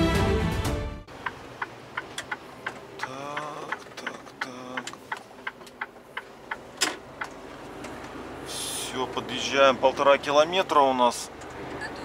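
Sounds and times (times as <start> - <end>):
sharp clicking: 1.1 - 8.2.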